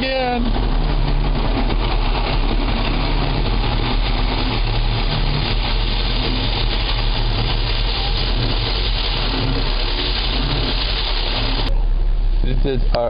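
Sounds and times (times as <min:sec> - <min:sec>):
car wash water jets rushing: 0:00.0 - 0:13.0.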